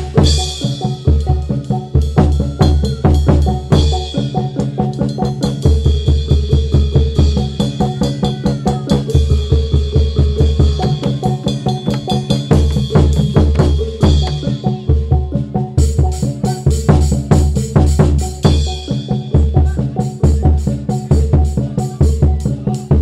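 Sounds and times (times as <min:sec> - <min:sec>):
fast driving drumming: 0:00.0 - 0:23.0
deep ringing pitched percussion: 0:09.0 - 0:23.0.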